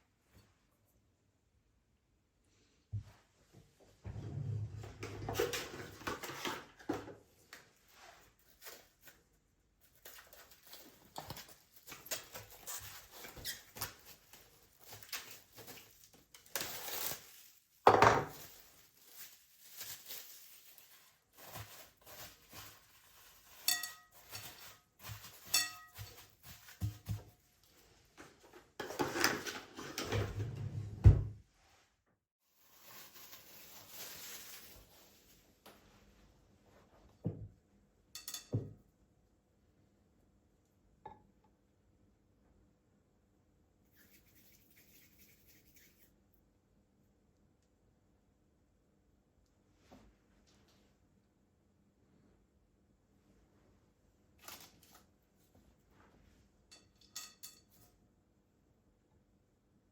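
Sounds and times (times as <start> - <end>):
dishes and utensils clinking: 23.5 - 26.4, 38.2 - 38.8, 56.7 - 57.9.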